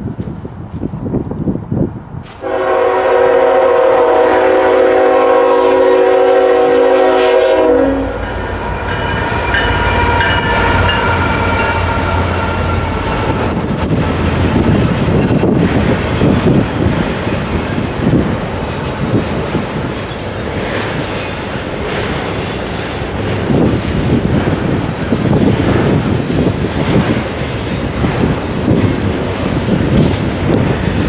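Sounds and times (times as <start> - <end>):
locomotive horn blast: 2.4 - 13.3
locomotive engine rumble: 2.4 - 31.0
train wheels clattering on rails: 8.1 - 31.0.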